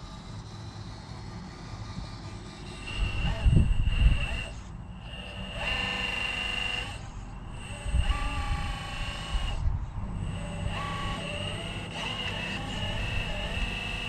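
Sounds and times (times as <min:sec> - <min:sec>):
small electric motor whining: 0:00.0 - 0:14.0
wind rumble on microphone: 0:02.8 - 0:04.6, 0:07.4 - 0:11.8, 0:12.6 - 0:14.0.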